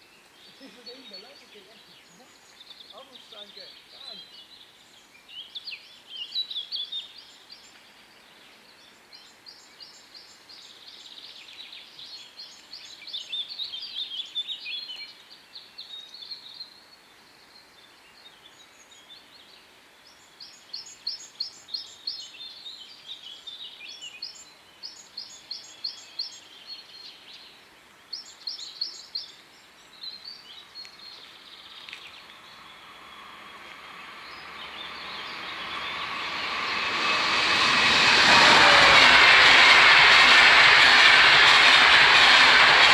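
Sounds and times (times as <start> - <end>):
songbirds singing: 0.0 - 36.5
faint outdoor hiss: 0.0 - 37.7
approaching train rushing: 32.1 - 42.9.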